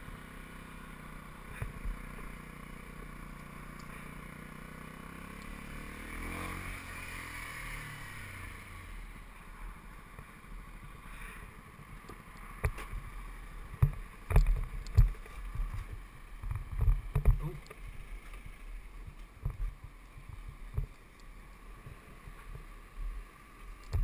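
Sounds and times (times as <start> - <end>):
motorcycle engine slowing: 0.0 - 23.0
low thumps and knocks: 13.7 - 17.6, 19.1 - 21.0.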